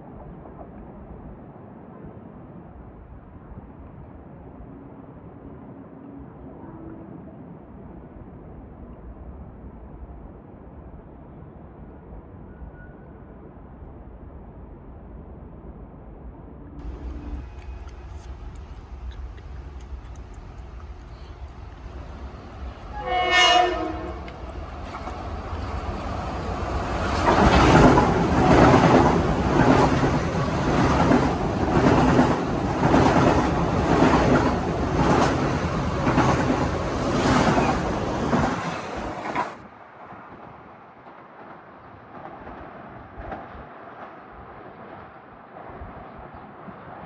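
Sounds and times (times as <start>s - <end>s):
train passing rumble: 14.5s - 47.0s
wheels clicking over rail joints: 16.8s - 39.6s
train horn blast: 22.0s - 25.1s.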